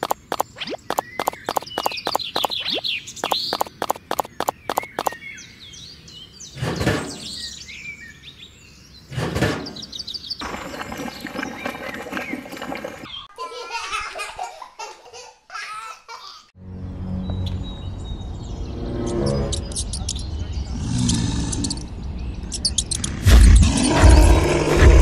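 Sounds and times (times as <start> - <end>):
birds chirping: 0.0 - 13.4, 16.2 - 25.0
wet cement pouring: 10.4 - 13.1.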